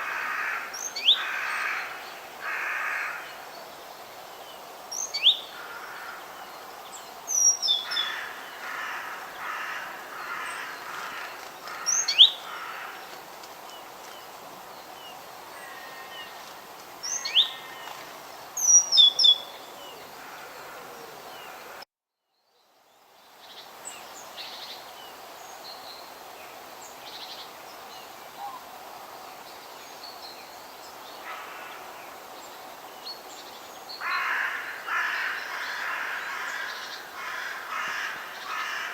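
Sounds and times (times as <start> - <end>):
outdoor background hiss: 0.0 - 38.9.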